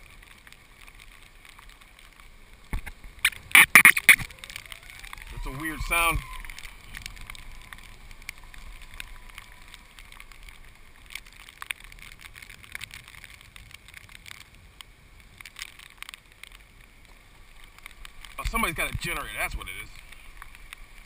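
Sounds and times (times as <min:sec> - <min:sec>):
thin whine: 0:02.8 - 0:10.9.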